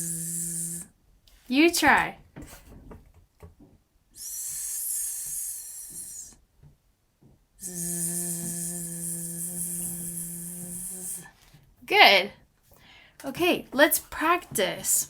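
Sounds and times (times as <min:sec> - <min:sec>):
person buzzing a z sound: 0:00.0 - 0:00.9, 0:04.2 - 0:06.4, 0:07.6 - 0:11.3
person hissing an s sound: 0:00.0 - 0:00.9, 0:04.2 - 0:06.4, 0:07.6 - 0:11.4.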